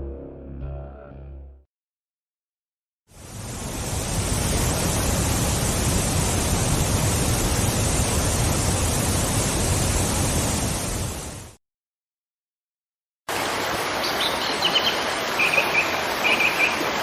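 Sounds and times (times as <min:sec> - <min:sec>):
waterfall roaring: 0:03.2 - 0:11.4, 0:13.3 - 0:17.0.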